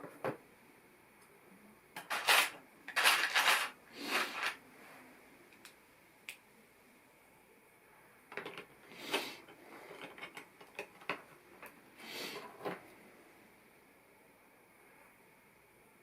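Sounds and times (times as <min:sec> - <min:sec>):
light clatter of plastic parts: 0:02.0 - 0:04.6, 0:08.3 - 0:11.8.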